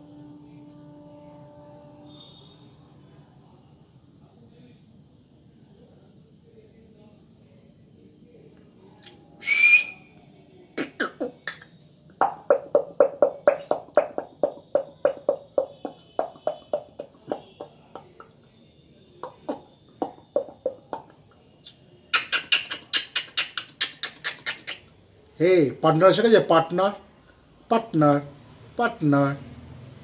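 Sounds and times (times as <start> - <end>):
parrot whistle: 9.4 - 10.1, 22.1 - 24.8
parrot clicking: 10.8 - 18.4.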